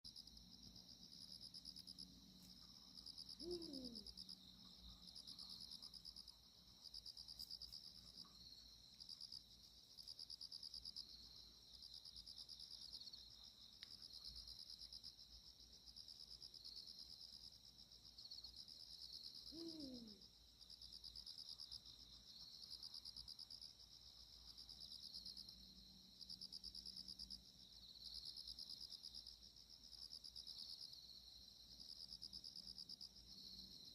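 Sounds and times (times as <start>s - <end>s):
crickets chirping: 0.1s - 33.9s
owl hooting: 3.1s - 4.2s, 19.5s - 20.2s.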